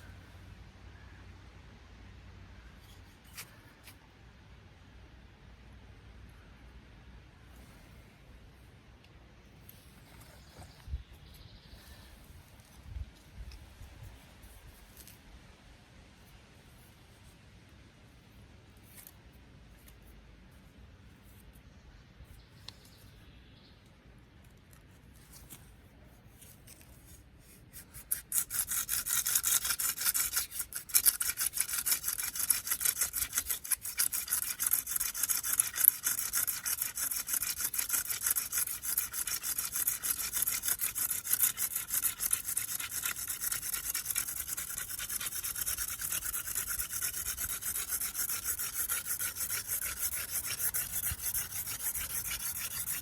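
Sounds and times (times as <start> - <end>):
spindle rubbing with squeak: 27.7 - 53.0.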